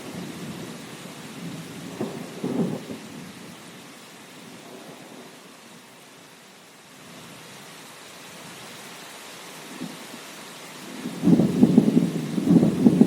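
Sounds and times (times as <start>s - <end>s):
steady rain: 0.0s - 13.0s
rolling thunder: 1.4s - 3.3s, 10.9s - 13.0s
sharp thunder cracks: 11.1s - 13.0s.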